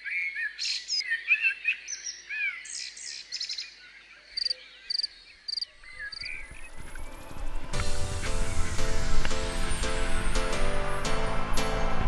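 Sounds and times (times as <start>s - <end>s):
songbirds warbling and chirping: 0.0s - 7.6s.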